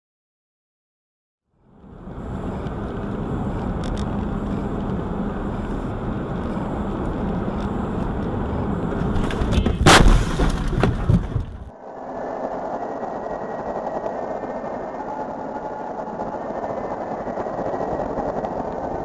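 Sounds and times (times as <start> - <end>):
car road and engine noise: 1.5 - 19.0
loud bang: 9.6 - 11.4.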